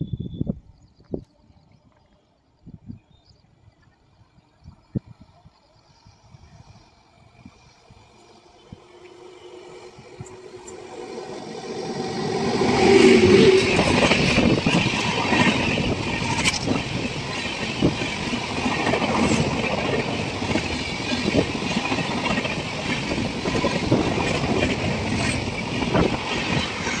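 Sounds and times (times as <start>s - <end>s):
train rushing past: 6.5s - 27.0s.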